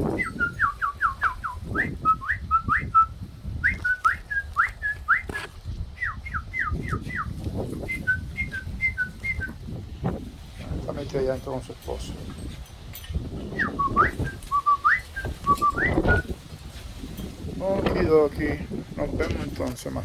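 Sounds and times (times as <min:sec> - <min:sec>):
bird whistling sliding notes: 0:00.1 - 0:03.1, 0:13.5 - 0:16.3.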